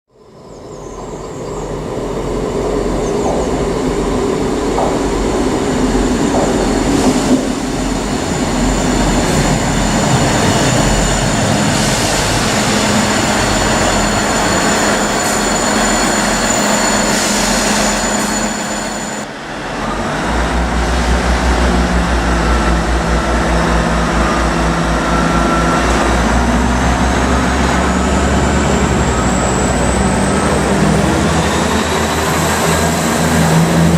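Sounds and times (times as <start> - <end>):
train rolling on rails: 0.2 - 33.9
diesel engine throbbing: 1.7 - 33.9
high ringing tones: 4.8 - 19.3.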